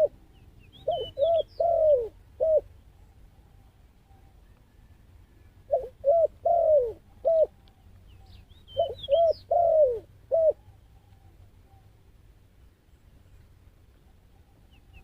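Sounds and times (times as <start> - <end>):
dove cooing: 0.0 - 7.9, 8.7 - 12.0
small bird chirping: 0.3 - 2.1, 6.9 - 9.9.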